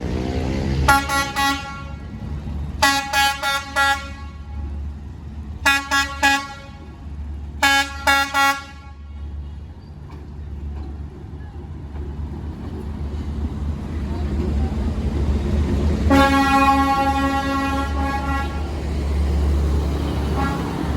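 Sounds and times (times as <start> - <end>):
diesel engine rumble: 0.0 - 20.9
locomotive horn toots: 0.8 - 2.2, 2.8 - 4.8, 5.6 - 7.0, 7.6 - 9.4, 16.1 - 18.8, 20.1 - 20.9.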